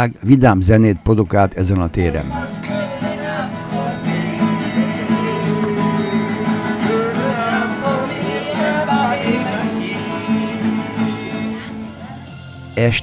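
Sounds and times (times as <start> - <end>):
person singing: 2.0 - 12.3
strummed acoustic guitar: 2.0 - 12.8.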